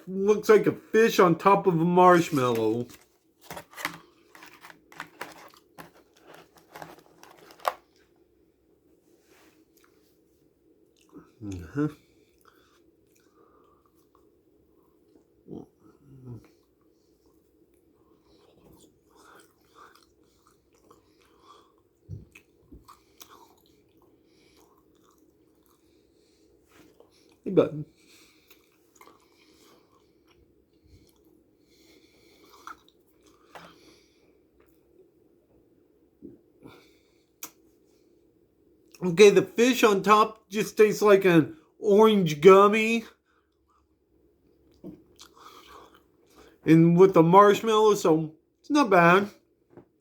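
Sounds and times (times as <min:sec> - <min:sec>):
plastic packaging crinkling: 0:02.2 - 0:07.8
faint chewing of gummy candy: 0:02.8 - 0:08.2, 0:09.4 - 0:35.1, 0:43.2 - 0:46.6.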